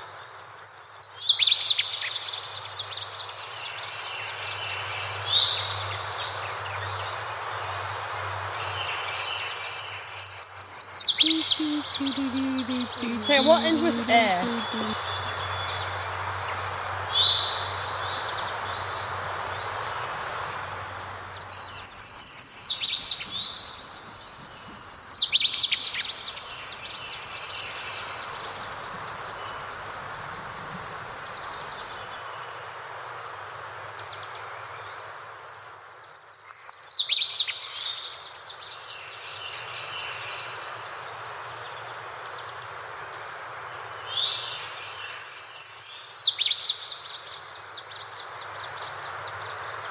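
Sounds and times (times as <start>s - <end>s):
faint bird chirps: 9.9s - 15.8s
songbird trilling: 10.0s - 15.8s
running water: 11.2s - 15.4s.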